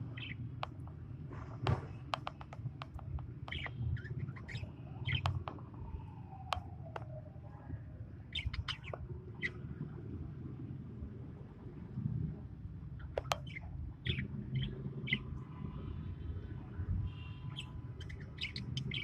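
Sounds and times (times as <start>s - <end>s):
lovebirds chirping: 0.0s - 7.1s, 8.3s - 9.6s, 13.0s - 15.5s, 17.1s - 19.0s.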